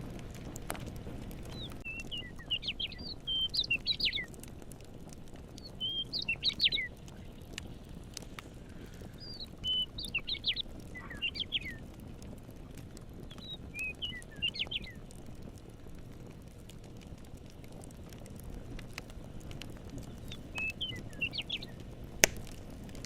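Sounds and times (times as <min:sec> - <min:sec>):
fire crackling: 0:00.0 - 0:23.0
songbird chirping: 0:01.4 - 0:04.4, 0:05.6 - 0:07.4, 0:09.2 - 0:11.8, 0:13.2 - 0:15.0, 0:20.1 - 0:21.8.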